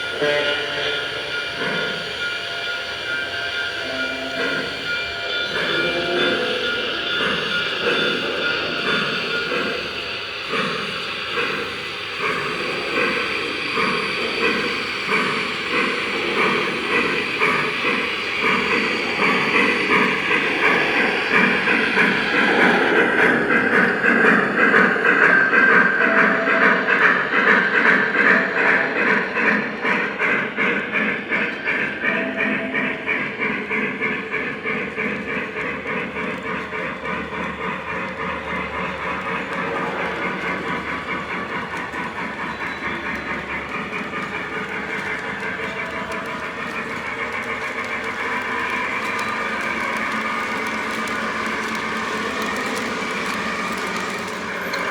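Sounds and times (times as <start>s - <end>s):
model steam locomotive chuffing: 0.0s - 54.9s
wheels clicking on track: 0.0s - 54.9s.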